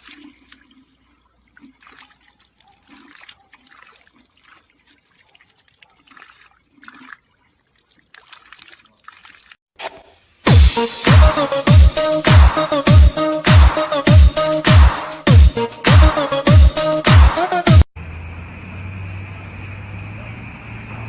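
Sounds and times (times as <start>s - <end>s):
water trickling: 0.0s - 9.6s.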